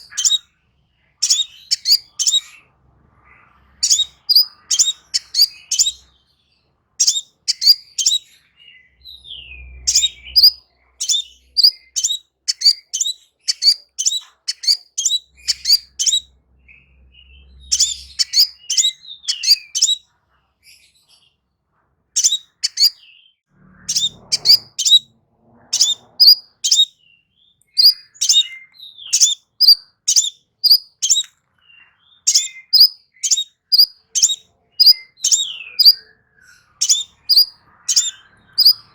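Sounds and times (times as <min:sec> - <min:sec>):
bird chirping rapidly: 0:00.0 - 0:00.5, 0:01.2 - 0:02.7, 0:03.7 - 0:06.2, 0:07.0 - 0:08.4, 0:09.4 - 0:20.0, 0:22.2 - 0:23.1, 0:23.8 - 0:25.1, 0:25.7 - 0:27.1, 0:27.7 - 0:31.3, 0:32.1 - 0:38.9.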